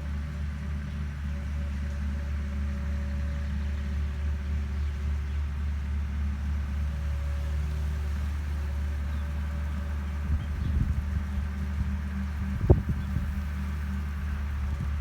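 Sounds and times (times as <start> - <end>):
machine engine droning: 0.0 - 15.0.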